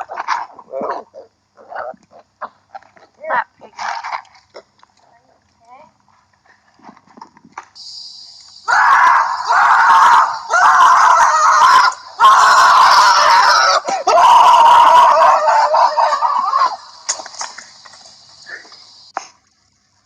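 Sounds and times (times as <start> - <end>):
loud screams: 8.6 - 17.1.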